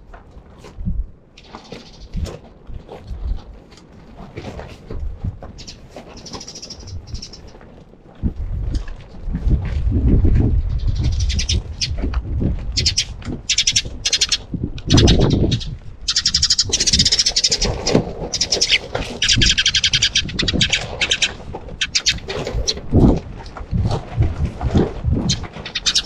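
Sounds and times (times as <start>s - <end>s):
sparrows chirping: 1.4s - 2.2s, 5.6s - 7.6s, 10.7s - 12.0s, 12.8s - 22.9s, 25.3s - 26.0s.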